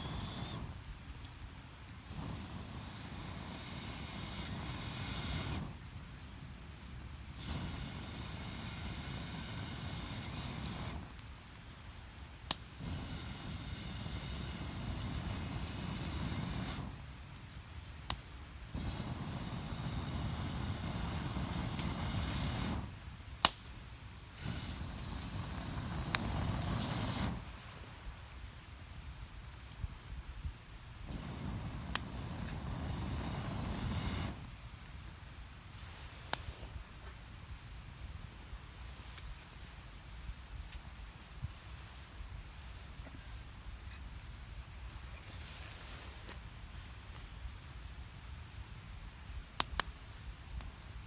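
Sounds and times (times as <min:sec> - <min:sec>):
wood fire burning: 0:00.0 - 0:51.0
wood popping: 0:23.0 - 0:24.0.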